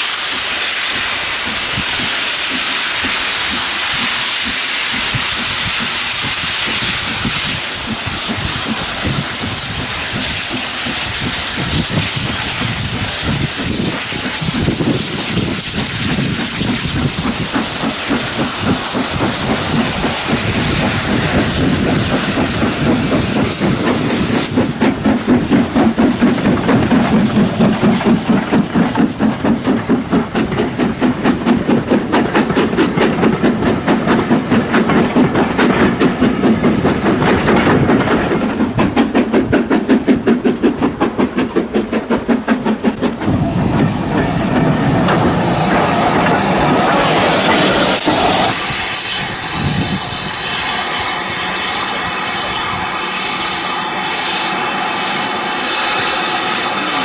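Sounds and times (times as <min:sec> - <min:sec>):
locomotive chuffing exhaust beats: 0:00.0 - 0:57.0
steam hissing: 0:00.0 - 0:57.0
steady rumble: 0:14.4 - 0:48.6.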